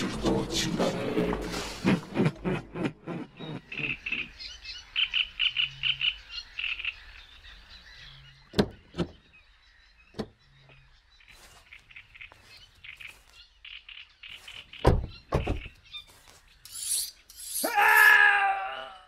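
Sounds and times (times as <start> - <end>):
small birds chirping: 3.2 - 18.0.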